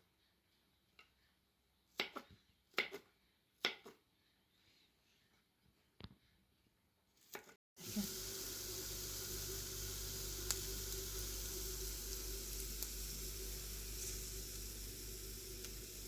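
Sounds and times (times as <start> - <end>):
food sizzling in a pan: 7.8 - 16.0.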